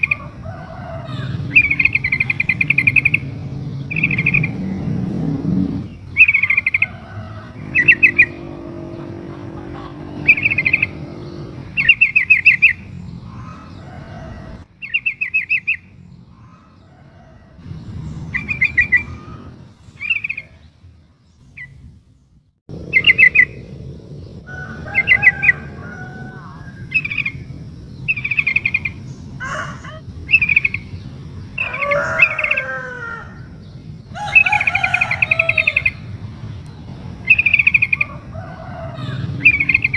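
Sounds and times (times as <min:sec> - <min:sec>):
faint low rumble: 0:00.0 - 0:14.7, 0:15.9 - 0:31.7
bird chattering calls: 0:01.0 - 0:13.9, 0:28.1 - 0:31.0, 0:37.2 - 0:38.3.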